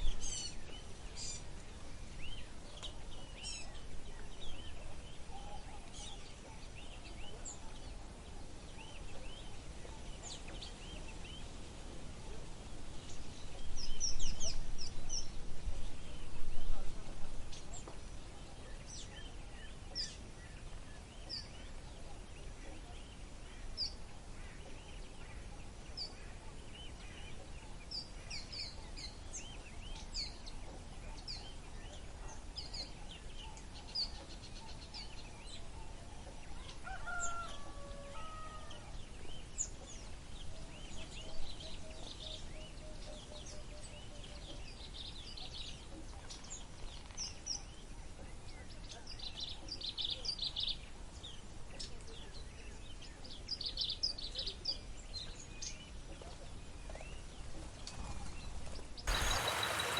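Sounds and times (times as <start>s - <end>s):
birds chirping: 59.1s - 59.9s
lower longer bird call: 59.1s - 59.9s.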